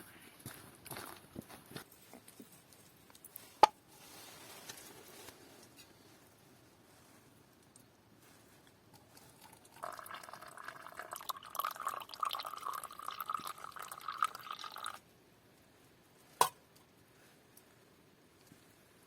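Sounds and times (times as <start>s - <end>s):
liquid pouring into a cup: 9.3s - 15.0s.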